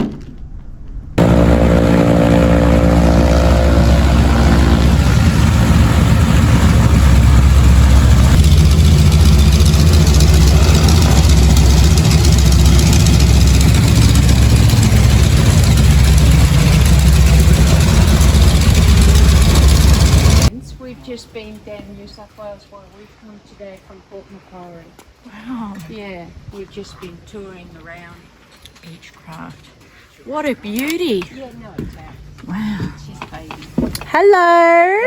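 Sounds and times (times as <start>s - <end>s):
propeller aircraft engine drone: 1.2s - 20.5s
propeller wash hiss: 1.2s - 20.5s.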